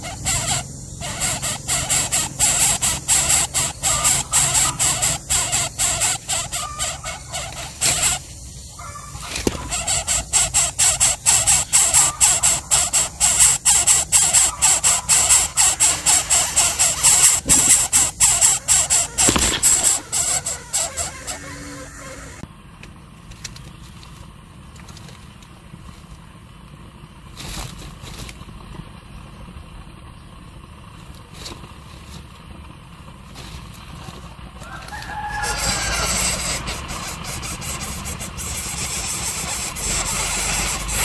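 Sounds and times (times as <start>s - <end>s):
bird chick squealing calls: 0.0s - 22.4s, 34.6s - 41.0s.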